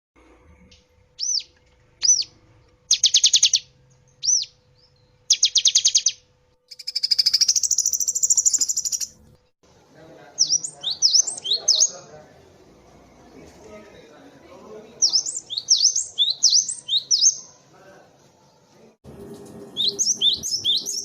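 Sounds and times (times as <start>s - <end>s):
bird calling with whistles and trills: 1.2s - 9.2s, 10.4s - 12.0s, 15.0s - 17.5s, 19.7s - 21.0s.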